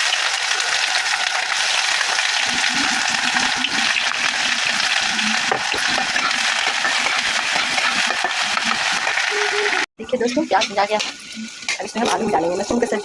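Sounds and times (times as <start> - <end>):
onion sizzling in oil: 0.0 - 13.0
stirring scrapes in pan: 4.9 - 9.2.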